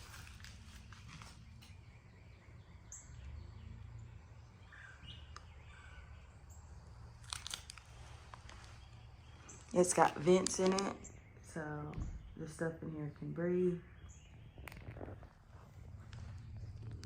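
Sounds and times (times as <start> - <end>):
bird chirps: 0.8 - 7.1, 8.0 - 17.0
clicks and crunches: 7.1 - 8.9, 9.5 - 11.1
steady low rumble: 11.0 - 17.0.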